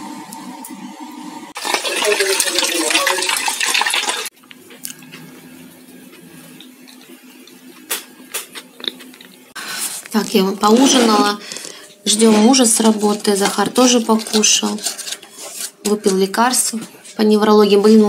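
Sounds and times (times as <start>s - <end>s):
tap water running into sink: 1.6s - 4.3s.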